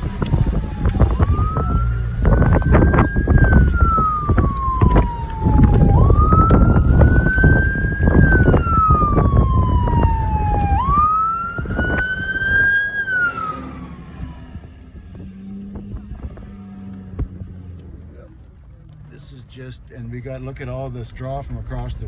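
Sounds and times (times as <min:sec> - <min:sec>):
heavy low rumble with knocks: 0:00.0 - 0:12.6
emergency siren wailing: 0:00.0 - 0:17.5.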